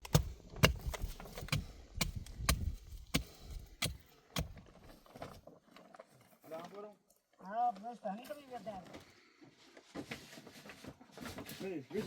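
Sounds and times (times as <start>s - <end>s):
chopping strikes with dull thuds: 0.0s - 4.7s.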